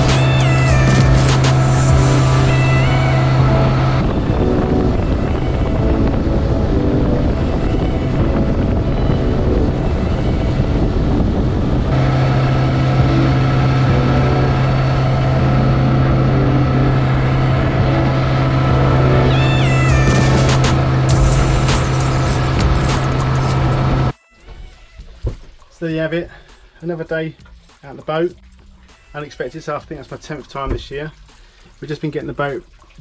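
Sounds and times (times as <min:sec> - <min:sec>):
motorboat engine running: 0:00.0 - 0:24.1
wind noise: 0:00.0 - 0:24.1.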